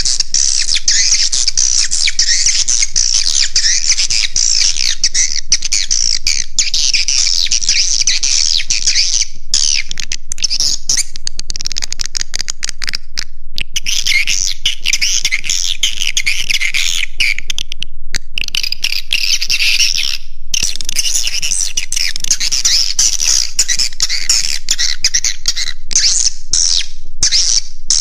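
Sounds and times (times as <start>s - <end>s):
birds twittering: 0.0s - 9.9s.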